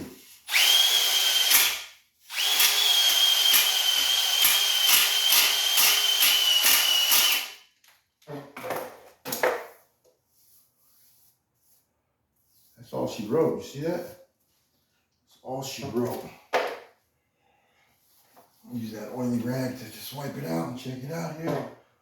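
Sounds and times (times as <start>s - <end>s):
electric drill whining: 0.5s - 7.6s.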